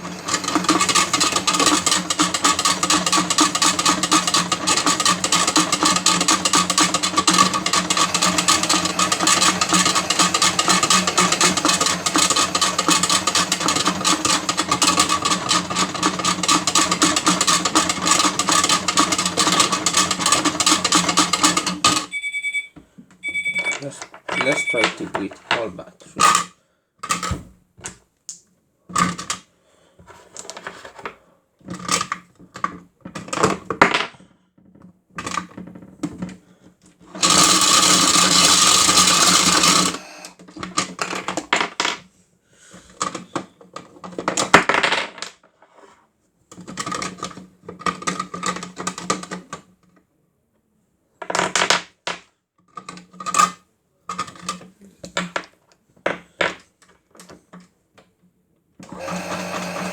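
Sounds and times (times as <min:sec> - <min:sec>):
batteries rattling in drum: 0:00.0 - 0:22.1, 0:23.3 - 0:27.3, 0:37.2 - 0:42.0
small electric motor running: 0:00.1 - 0:16.8, 0:37.2 - 0:40.3, 0:59.0 - 0:59.9.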